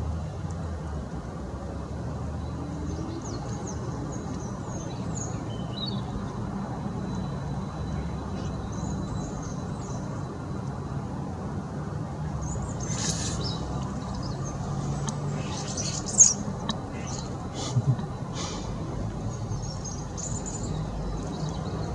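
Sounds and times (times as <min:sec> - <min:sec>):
low background rumble: 0:11.4 - 0:21.9
birds chirping: 0:12.2 - 0:21.9.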